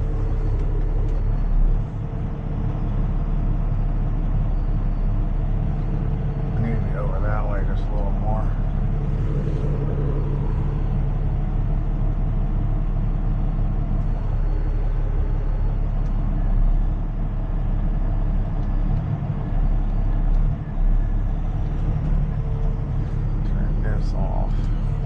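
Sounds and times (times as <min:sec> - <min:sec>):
truck engine running: 0:00.0 - 0:25.0.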